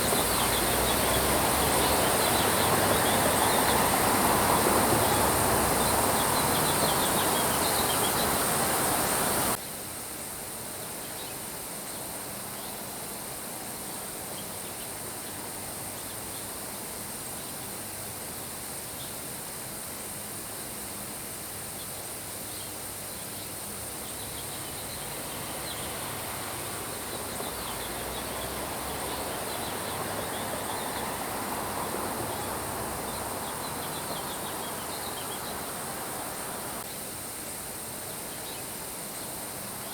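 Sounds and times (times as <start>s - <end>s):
steady rain: 0.0s - 9.6s, 23.7s - 39.9s.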